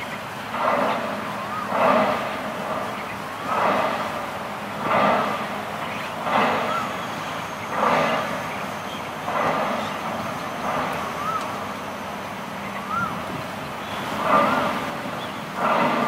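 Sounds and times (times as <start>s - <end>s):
distant traffic hum: 0.0s - 16.0s
harsh bird call: 11.1s - 11.6s
short whistled bird notes: 11.1s - 11.6s.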